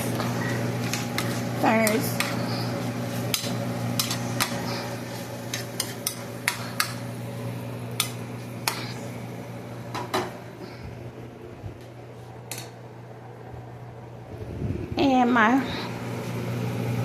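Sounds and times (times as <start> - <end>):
utensil stirring meat in a pot: 0.0 - 7.1
steady background hum: 0.0 - 17.0
utensil clicking against pot: 3.3 - 4.6, 5.5 - 7.0, 8.0 - 8.8.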